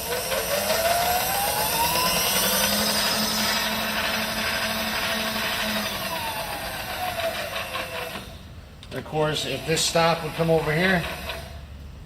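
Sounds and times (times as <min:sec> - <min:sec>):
power feed motor whine: 0:00.0 - 0:08.4, 0:09.2 - 0:11.7.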